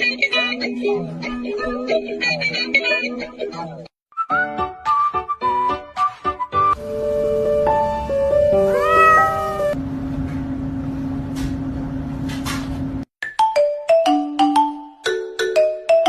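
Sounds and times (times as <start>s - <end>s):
background music: 0.7s - 9.8s
cat meowing: 8.6s - 9.8s.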